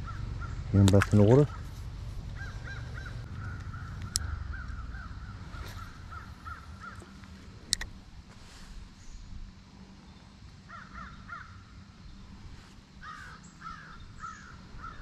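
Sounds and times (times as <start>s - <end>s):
bird calling rapidly: 0.0s - 7.2s, 13.0s - 15.0s
sharp clicks: 3.4s - 4.8s, 7.0s - 8.0s.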